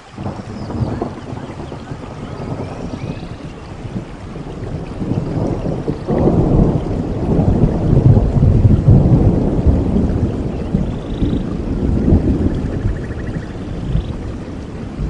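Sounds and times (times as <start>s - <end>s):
rolling thunder: 0.0s - 15.0s
steady rain: 0.0s - 15.0s.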